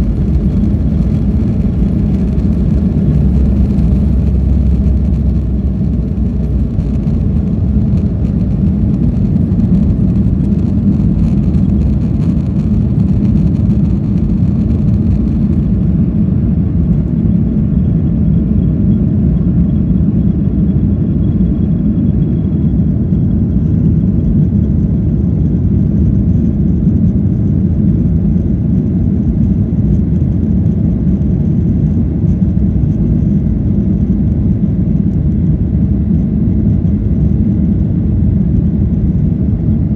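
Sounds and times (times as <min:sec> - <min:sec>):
faint high whine: 0:00.0 - 0:23.5
jet engines rumbling in cabin: 0:00.0 - 0:39.9.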